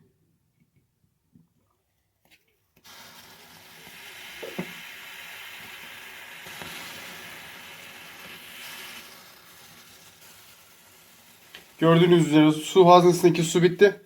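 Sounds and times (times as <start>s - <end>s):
egg boiler hissing and sizzling: 2.8s - 13.6s.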